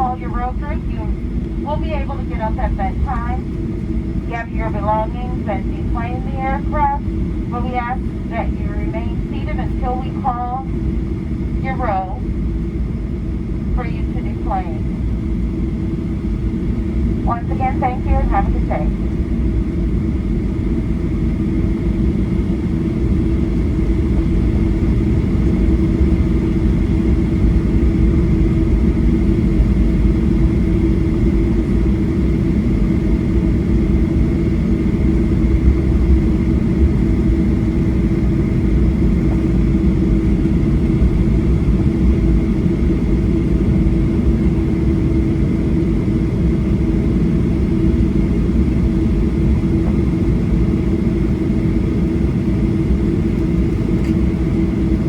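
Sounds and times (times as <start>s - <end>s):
airplane cabin rumble: 0.0s - 55.0s
jet engines droning at idle: 0.0s - 55.0s.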